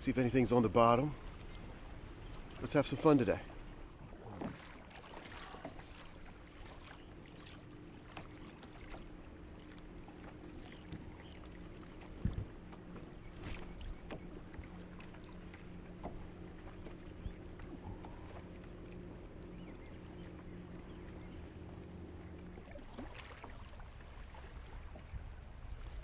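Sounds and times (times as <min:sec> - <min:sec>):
water lapping against hull: 0:00.0 - 0:26.0
low knock on hull: 0:16.0 - 0:17.0.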